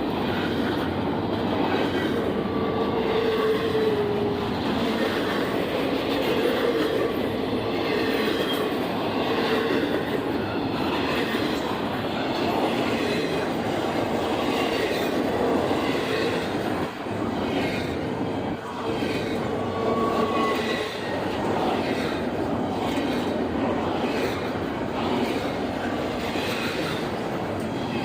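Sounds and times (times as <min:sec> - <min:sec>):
train wheels rumbling on rails: 0:00.0 - 0:28.0
wheels squealing: 0:17.5 - 0:22.2.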